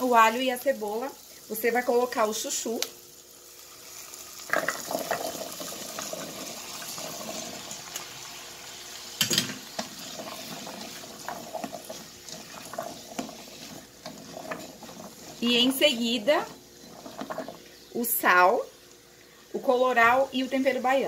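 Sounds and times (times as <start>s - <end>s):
steady sizzle: 0.0s - 21.0s
vegetables tumbling into hot oil: 0.0s - 21.0s
spatula stirring: 9.6s - 17.9s.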